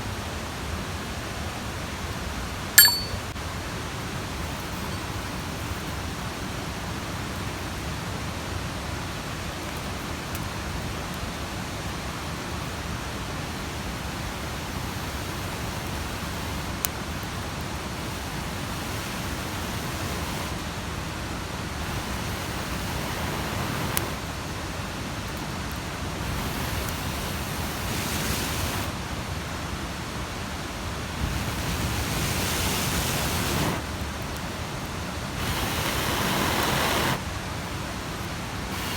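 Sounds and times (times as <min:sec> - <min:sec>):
mountain stream rushing: 0:11.3 - 0:38.9.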